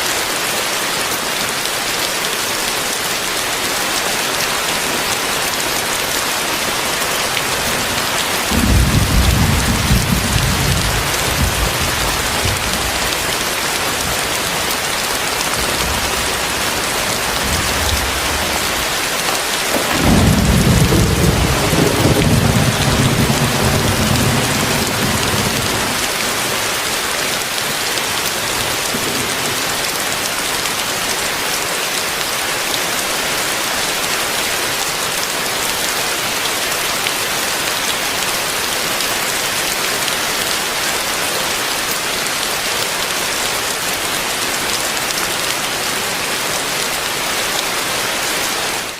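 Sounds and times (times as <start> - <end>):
heavy rain pouring: 0.0 - 48.9
thunder rolling: 8.4 - 13.1, 19.7 - 26.0.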